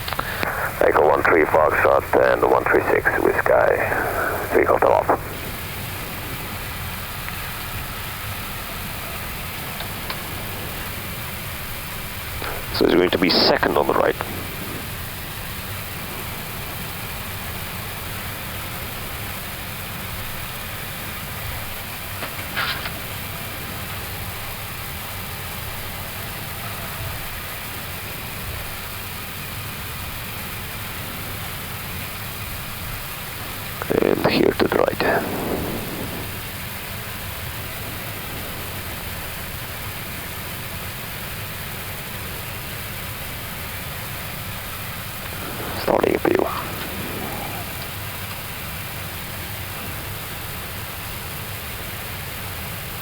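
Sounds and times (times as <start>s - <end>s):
air-conditioning airflow hiss: 0.0s - 53.0s
aircraft engines idling rumble: 0.0s - 53.0s
low rumble: 14.1s - 18.5s, 35.0s - 41.1s, 44.8s - 50.0s.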